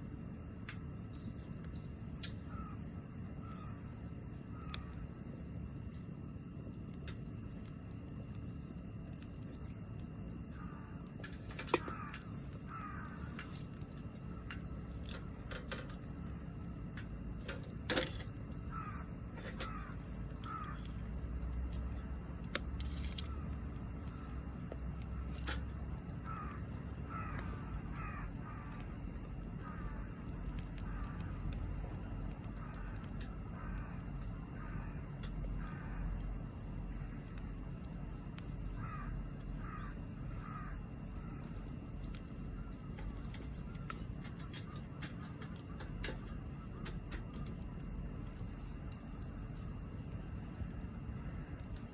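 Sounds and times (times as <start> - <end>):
campfire popping: 0.0 - 51.9
crows cawing: 2.4 - 3.9, 4.5 - 5.1, 10.5 - 13.8, 18.0 - 21.2, 25.4 - 31.6, 32.2 - 37.4, 38.7 - 41.8, 42.6 - 46.1.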